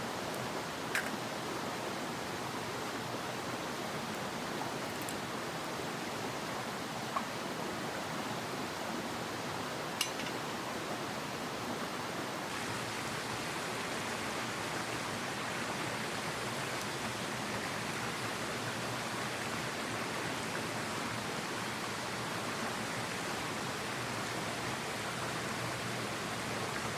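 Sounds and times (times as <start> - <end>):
mountain stream rushing: 0.0 - 26.9.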